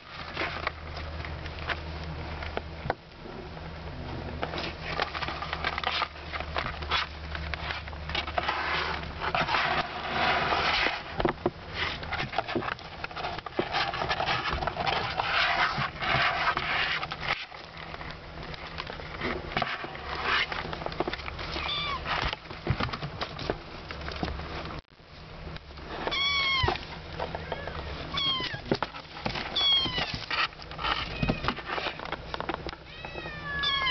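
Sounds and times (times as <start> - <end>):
kittens scrambling and scratching: 4.3 - 24.8, 25.8 - 33.9
kittens mewing: 21.5 - 22.1, 26.1 - 26.8, 27.4 - 28.8, 29.5 - 30.3, 32.8 - 33.9.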